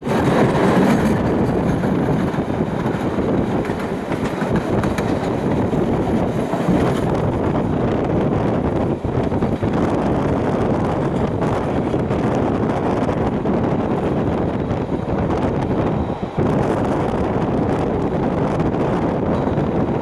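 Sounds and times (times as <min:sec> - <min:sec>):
train rolling along track: 0:00.0 - 0:20.0
wind on microphone: 0:00.0 - 0:20.0.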